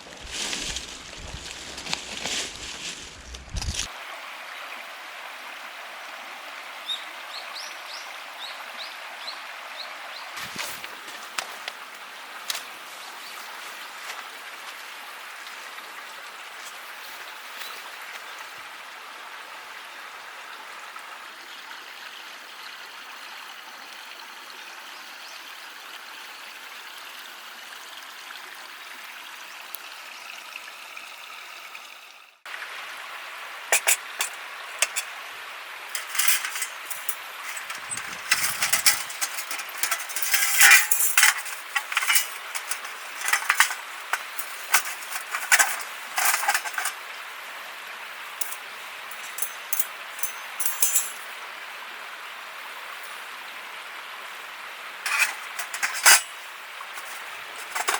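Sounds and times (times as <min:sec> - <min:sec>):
steady outdoor hiss: 0:00.0 - 0:27.7, 0:32.3 - 0:57.9
metallic clinks and knocks: 0:33.7 - 0:35.1, 0:35.9 - 0:47.0, 0:48.4 - 0:51.2, 0:55.1 - 0:57.9.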